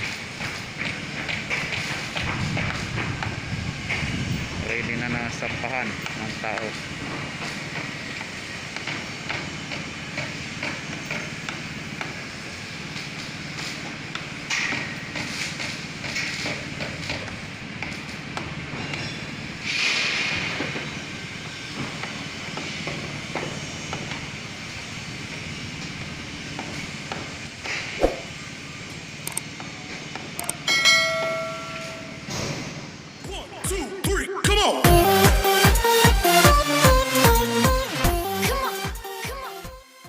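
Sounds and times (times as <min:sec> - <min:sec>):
machinery hum: 0:00.0 - 0:39.1
hissing surges: 0:19.5 - 0:29.4.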